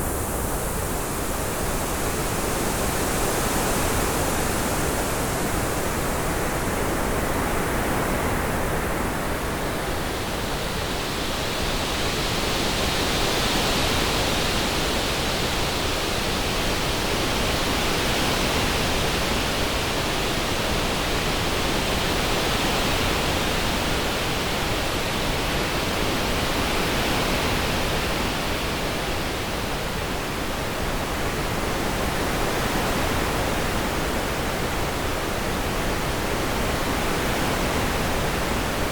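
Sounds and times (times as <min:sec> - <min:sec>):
synthesized wind-like hiss: 0:00.0 - 0:38.9.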